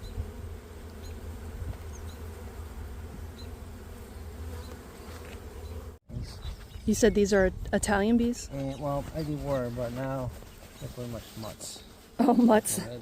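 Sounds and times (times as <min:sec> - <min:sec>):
honeybees buzzing: 0:00.0 - 0:06.0.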